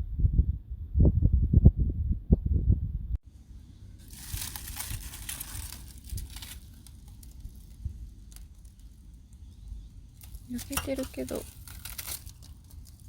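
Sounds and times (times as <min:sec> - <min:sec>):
low rumble: 0:00.0 - 0:13.0
wrapping crinkling: 0:04.0 - 0:13.0.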